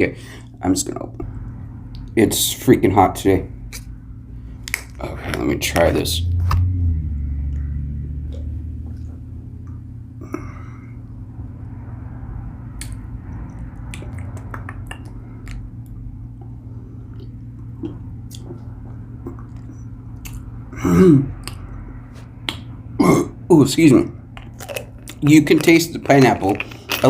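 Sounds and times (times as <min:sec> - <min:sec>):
steady low hum: 0:00.0 - 0:27.0
small wet mouth clicks: 0:13.9 - 0:16.0, 0:21.4 - 0:21.7
man sipping and swallowing: 0:17.0 - 0:20.4.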